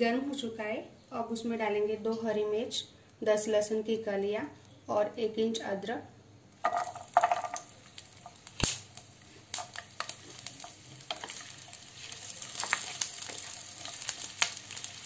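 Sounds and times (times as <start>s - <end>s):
vegetables sizzling in hot oil: 6.6s - 15.0s
wooden spatula stirring: 9.3s - 15.0s.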